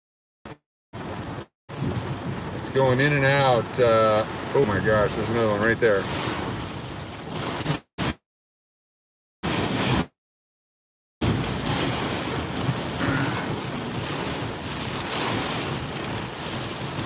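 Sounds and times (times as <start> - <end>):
heavy rain on a car: 1.0 - 7.7, 11.2 - 17.0
wind beating on a car: 1.0 - 7.7, 11.2 - 17.0.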